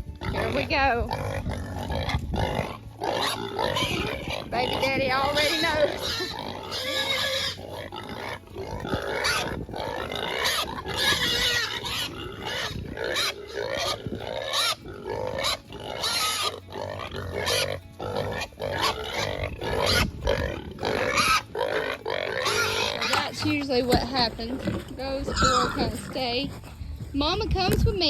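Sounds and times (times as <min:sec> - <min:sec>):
pigs squealing and grunting: 0:00.0 - 0:26.8.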